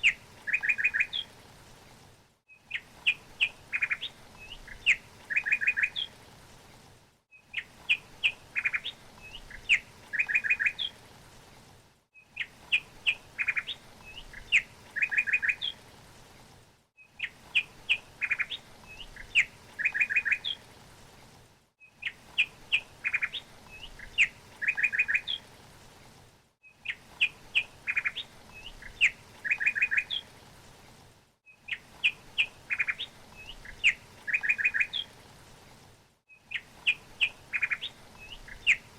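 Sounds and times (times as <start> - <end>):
songbird chirping and trilling: 0.0 - 1.3, 2.6 - 6.1, 7.4 - 11.0, 12.3 - 15.8, 17.0 - 20.6, 21.9 - 25.4, 26.8 - 30.3, 31.7 - 35.1, 36.4 - 38.9.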